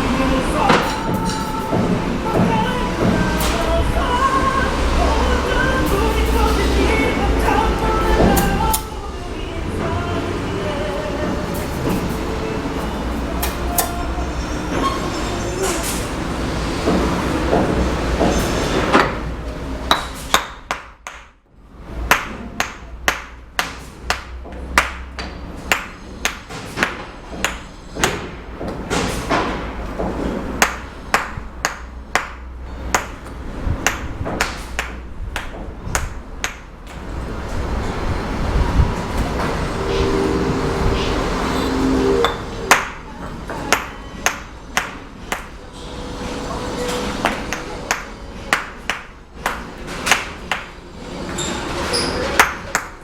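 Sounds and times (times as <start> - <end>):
steel tool tapping bricks: 22.1 - 28.2, 30.6 - 36.7.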